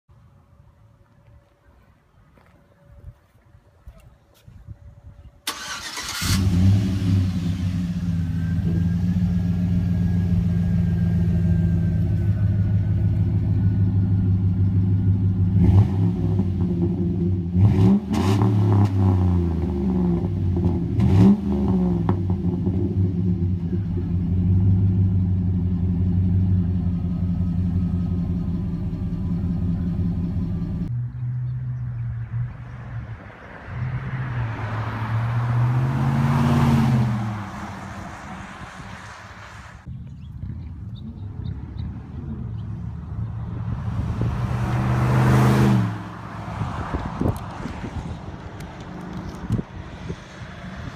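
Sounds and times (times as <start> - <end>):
car engine starting and idling: 5.4 - 31.3
car engine revving: 5.5 - 31.4, 33.4 - 39.7, 42.5 - 47.7.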